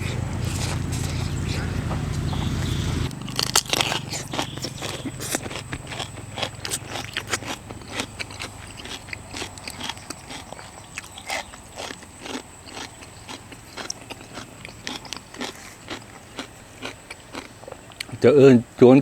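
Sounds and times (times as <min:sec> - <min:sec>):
person chewing and crunching: 0:00.0 - 0:18.2
shell cracks and clicks: 0:03.1 - 0:07.6.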